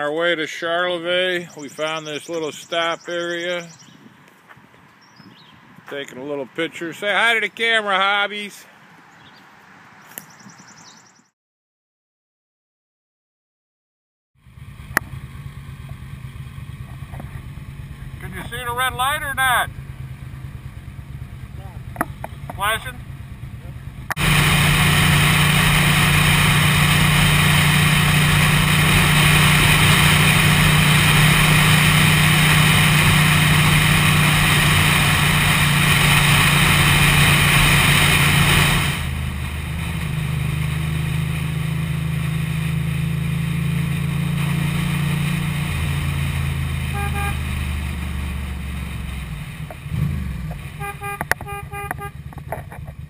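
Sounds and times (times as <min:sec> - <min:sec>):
motorcycle engine hum: 0:00.0 - 0:07.5, 0:14.4 - 0:53.0
wind rush on microphone: 0:03.8 - 0:05.9.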